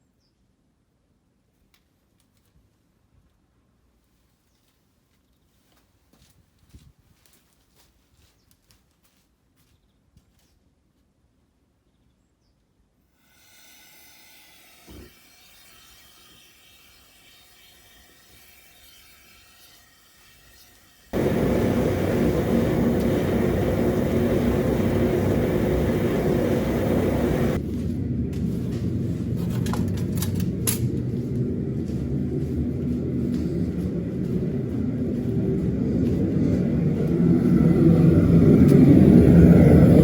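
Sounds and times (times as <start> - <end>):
furnace burner roaring: 21.2 - 30.1, 30.9 - 40.0.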